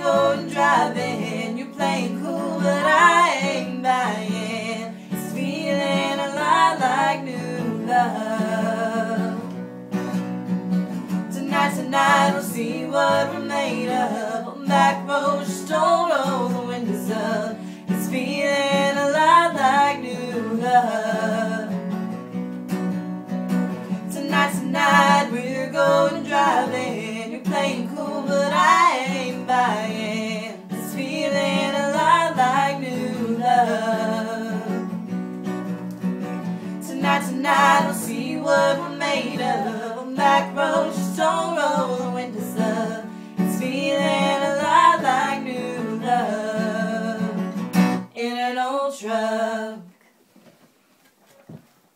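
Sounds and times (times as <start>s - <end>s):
person singing: 0.0s - 9.6s, 11.3s - 21.9s, 24.0s - 35.0s, 36.6s - 47.6s
strummed acoustic guitar: 0.0s - 48.2s.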